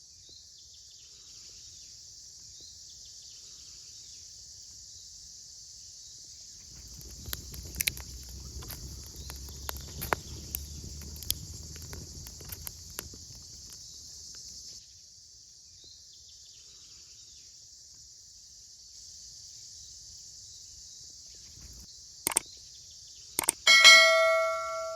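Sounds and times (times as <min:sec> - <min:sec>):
insects chirring: 0:00.1 - 0:24.9
sharp clicks and knocks: 0:06.7 - 0:13.8, 0:21.6 - 0:22.4, 0:23.4 - 0:24.9
ringing metallic strike: 0:23.7 - 0:24.9.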